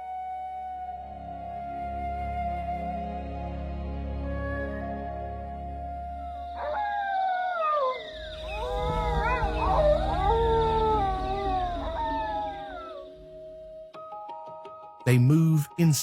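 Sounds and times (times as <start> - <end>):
background music held notes: 0.0 - 7.1, 7.9 - 16.0
wolves howling in chorus: 6.4 - 13.4.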